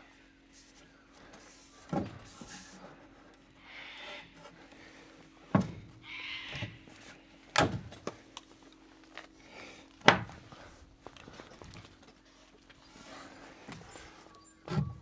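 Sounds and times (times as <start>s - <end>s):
heavy thuds on timber post: 10.0s - 10.5s.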